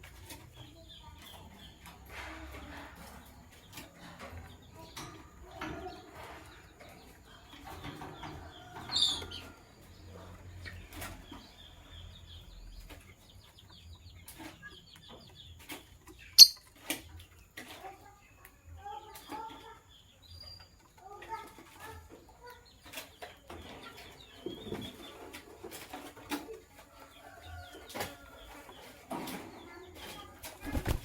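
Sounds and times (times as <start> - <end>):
birds moving with clicks and rustles: 0.0 - 31.0
high bird chirp: 16.2 - 16.7.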